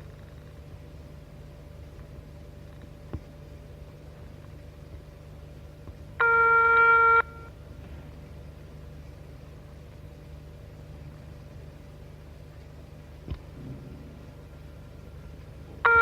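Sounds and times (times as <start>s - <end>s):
faint low hum: 0.0s - 16.0s
electronic telephone beep: 6.2s - 7.5s.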